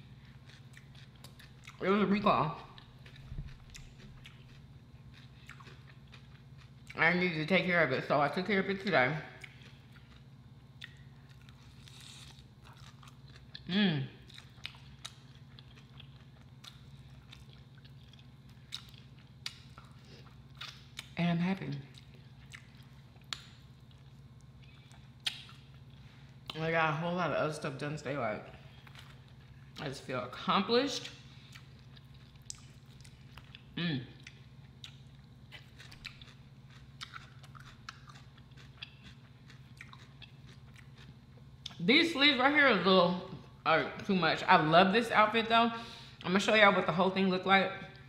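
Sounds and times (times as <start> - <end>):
person chewing: 0.0 - 1.8, 2.6 - 7.0, 9.4 - 21.2, 21.9 - 26.6, 28.7 - 29.8, 31.0 - 41.8
steady low hum: 0.0 - 48.0.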